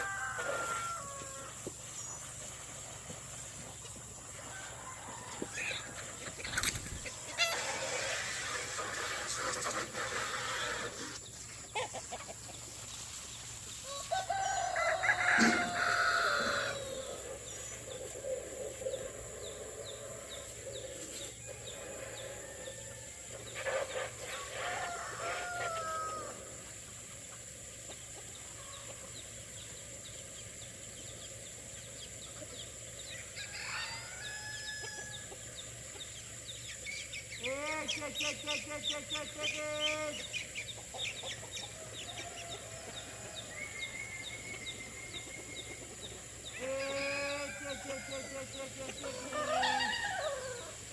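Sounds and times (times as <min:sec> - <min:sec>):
rooster crowing: 0:00.0 - 0:01.6, 0:04.5 - 0:06.0, 0:13.8 - 0:17.2, 0:24.4 - 0:26.5, 0:33.4 - 0:35.4, 0:46.4 - 0:50.9
chickens clucking: 0:00.0 - 0:50.9.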